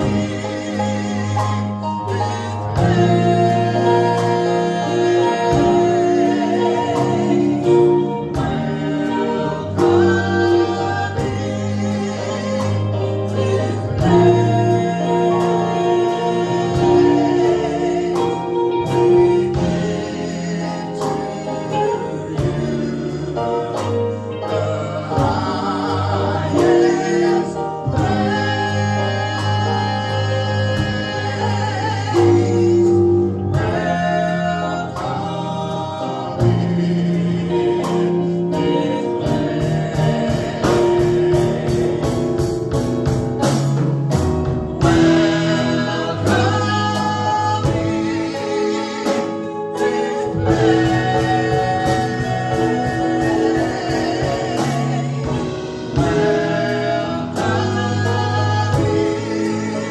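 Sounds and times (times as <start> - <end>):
choir singing over band: 0.0 - 59.9.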